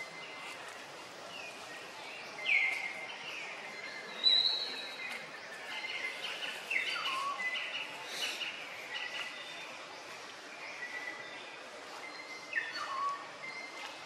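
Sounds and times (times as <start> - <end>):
birds chirping and whistling: 12.4 - 13.6.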